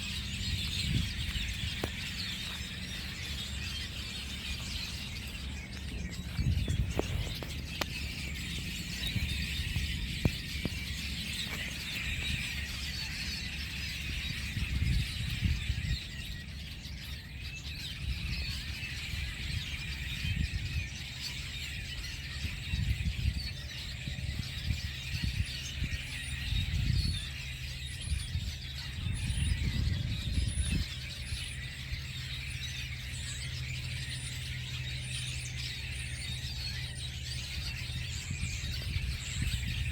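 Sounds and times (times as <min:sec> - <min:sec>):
low rumbles: 0:00.0 - 0:13.0
flock of birds chirping: 0:00.0 - 0:39.9.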